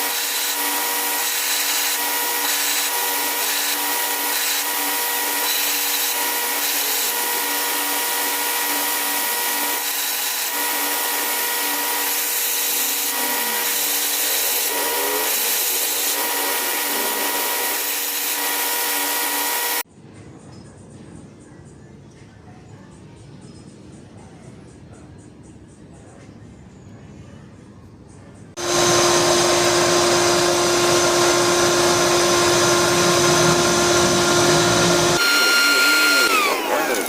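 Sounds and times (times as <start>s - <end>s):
power grinder running: 0.0s - 19.8s, 28.6s - 37.0s.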